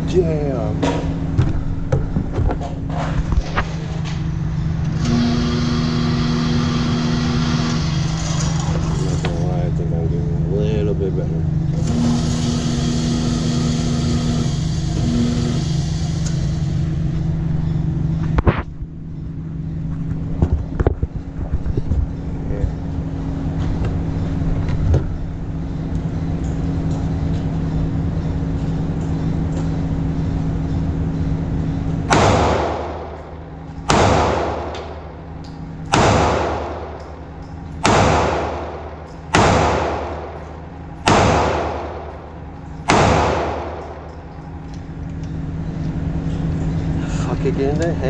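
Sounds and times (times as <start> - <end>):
steady low hum: 0.0 - 48.0
pistol shots with ringing tail: 32.1 - 44.5.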